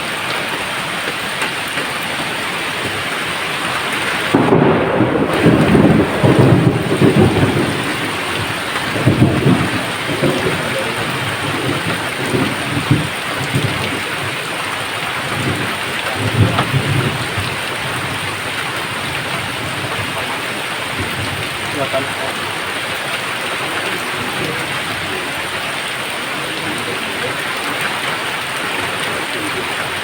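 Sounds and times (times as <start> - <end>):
heavy rain: 0.0 - 30.0
rolling thunder: 3.8 - 22.8.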